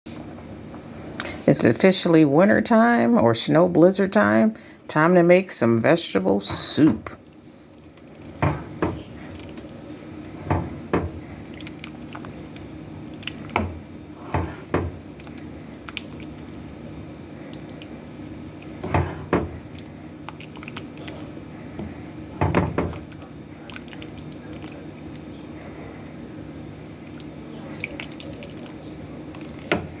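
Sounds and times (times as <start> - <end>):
steady low hum: 0.1 - 30.0
liquid sounds: 6.5 - 30.0
kitchen knocks and clatters: 8.4 - 9.1, 10.4 - 11.2, 13.5 - 15.0, 18.8 - 19.6, 22.4 - 23.1.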